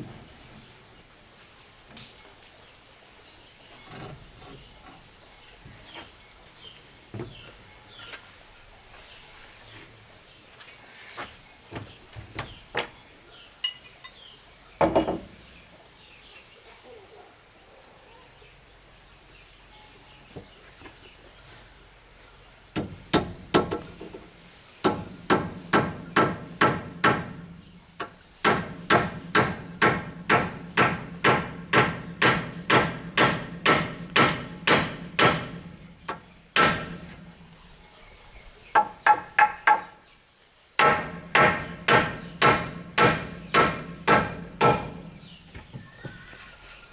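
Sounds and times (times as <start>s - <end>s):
knocks: 14.8s - 15.4s.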